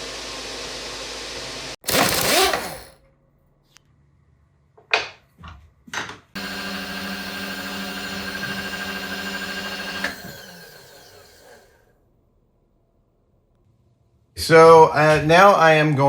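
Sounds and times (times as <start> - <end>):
milling machine motor humming: 1.8 - 2.9, 6.4 - 11.8.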